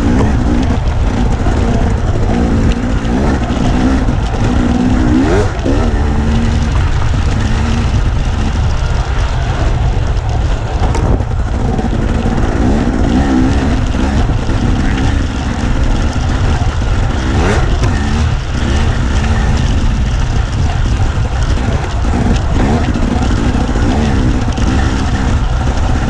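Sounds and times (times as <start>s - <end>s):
dirt bike engine revving: 0.0s - 26.0s
heavy low rumble: 0.0s - 26.0s.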